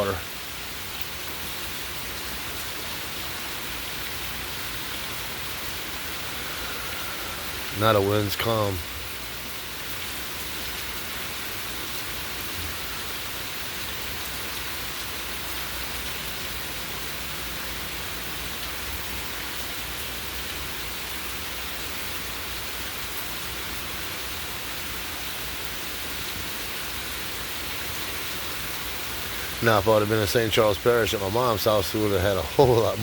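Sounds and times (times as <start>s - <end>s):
heavy rain hissing: 0.0s - 33.0s.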